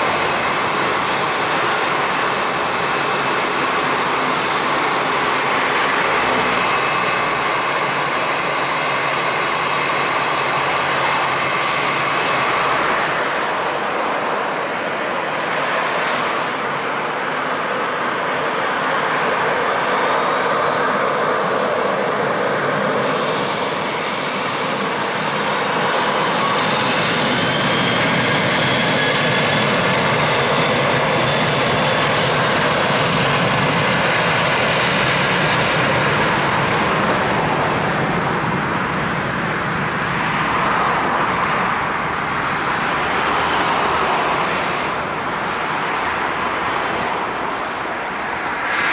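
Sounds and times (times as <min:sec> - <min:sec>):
jet engines roaring: 0:00.0 - 0:48.9.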